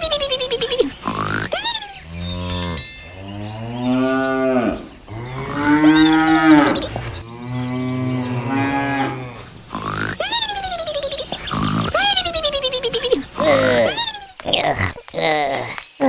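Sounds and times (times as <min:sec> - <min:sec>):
cow mooing: 0:01.9 - 0:12.1.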